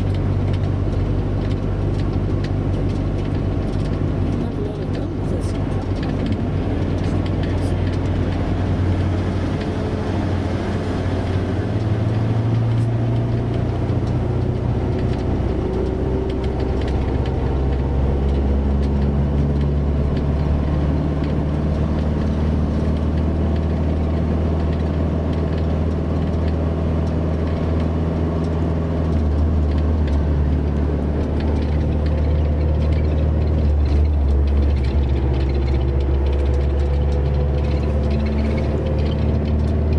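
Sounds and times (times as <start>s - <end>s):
heavy vehicle engine running: 0.0s - 39.9s
road noise: 0.0s - 39.9s.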